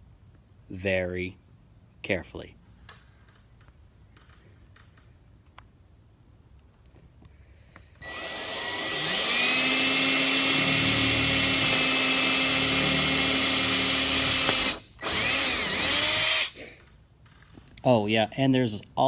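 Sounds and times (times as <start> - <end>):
power drill whining: 8.0 - 16.9.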